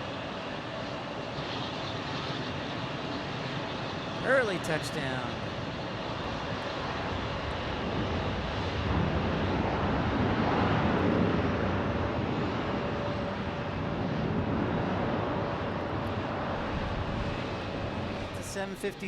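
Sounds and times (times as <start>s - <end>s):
jet engines rushing: 3.9s - 6.4s, 15.6s - 19.0s.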